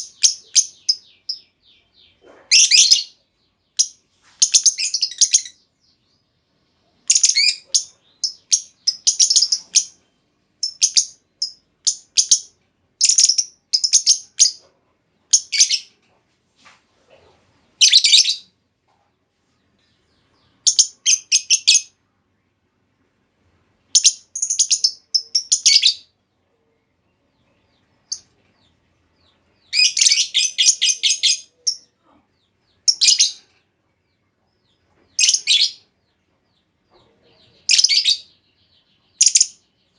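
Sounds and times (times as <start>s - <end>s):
lovebird chattering chirps: 0.0s - 1.5s, 2.1s - 5.6s, 7.0s - 10.0s, 10.6s - 14.6s, 15.3s - 15.9s, 17.8s - 18.5s, 20.4s - 21.9s, 23.9s - 26.1s, 29.6s - 31.9s, 32.8s - 33.4s, 35.1s - 35.8s, 37.6s - 38.3s, 39.2s - 39.6s.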